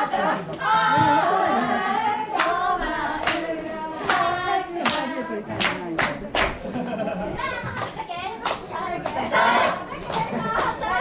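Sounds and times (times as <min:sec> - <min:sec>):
voices chanting together: 0:00.0 - 0:06.0, 0:08.8 - 0:11.0
sharp claps: 0:02.4 - 0:02.6, 0:03.2 - 0:06.6, 0:07.8 - 0:10.8.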